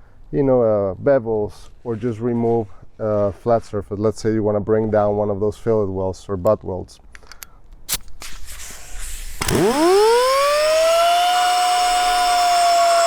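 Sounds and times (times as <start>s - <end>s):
air grinder motor whine: 8.3s - 13.0s
grinder clicks: 9.4s - 13.0s.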